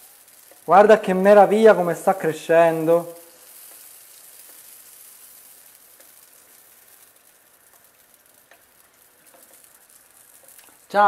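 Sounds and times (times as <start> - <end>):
dough sizzling in oil: 0.0 - 11.0.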